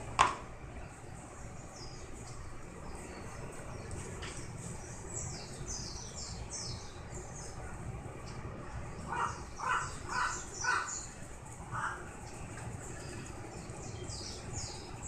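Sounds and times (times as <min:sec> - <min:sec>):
small birds twittering: 0:00.7 - 0:15.0
crow cawing: 0:09.1 - 0:11.0.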